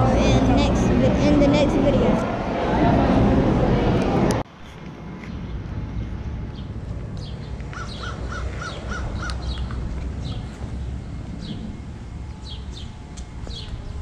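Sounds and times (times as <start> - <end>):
steady low rumble: 0.0 - 14.0
small birds chirping: 6.5 - 11.7
harsh bird calls: 7.4 - 10.6.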